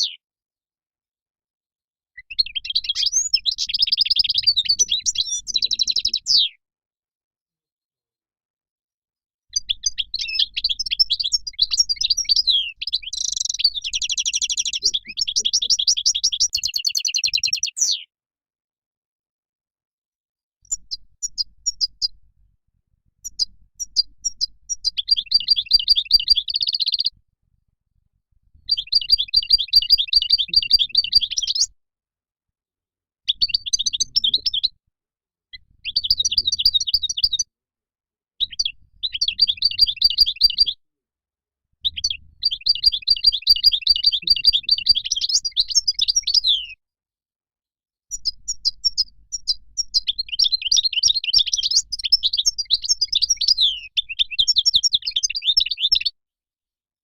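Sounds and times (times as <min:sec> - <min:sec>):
goldfinch twittering song: 0:02.2 - 0:06.5, 0:09.5 - 0:18.0, 0:20.7 - 0:22.2, 0:23.2 - 0:27.1, 0:28.6 - 0:31.7, 0:33.3 - 0:34.7, 0:35.6 - 0:37.4, 0:38.4 - 0:40.8, 0:41.8 - 0:46.8, 0:48.1 - 0:56.1.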